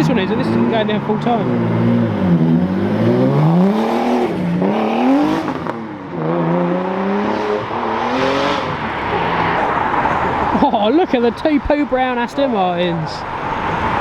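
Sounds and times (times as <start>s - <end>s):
car engine accelerating: 0.0s - 10.7s.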